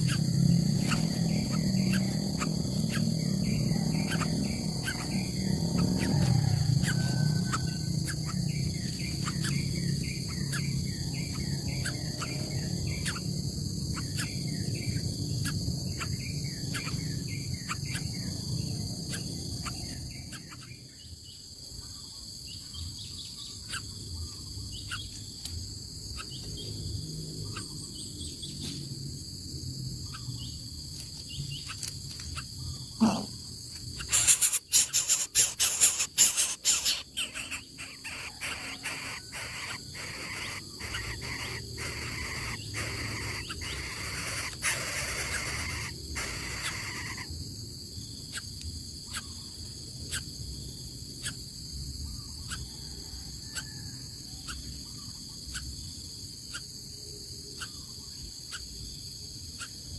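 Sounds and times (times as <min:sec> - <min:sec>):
bird chirps: 0:00.0 - 0:25.4, 0:31.2 - 0:47.3
insect chirring: 0:00.0 - 0:59.9.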